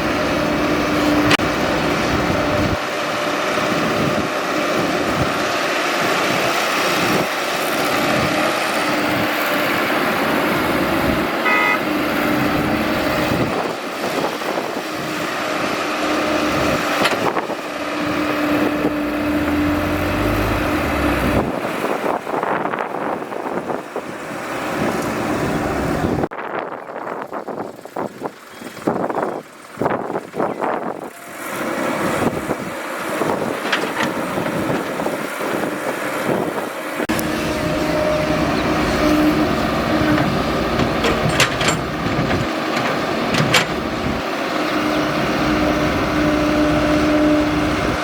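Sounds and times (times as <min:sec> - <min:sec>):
excavator diesel engine: 0:00.0 - 0:48.0
short beep: 0:11.4 - 0:11.8.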